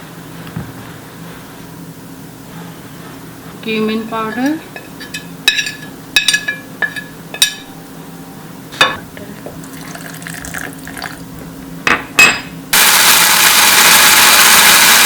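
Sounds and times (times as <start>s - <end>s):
electric mixer grinder running: 12.8s - 15.0s.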